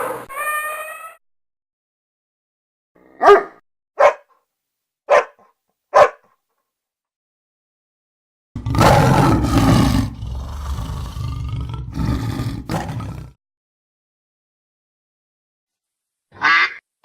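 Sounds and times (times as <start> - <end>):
tiger roaring: 8.6 - 13.4.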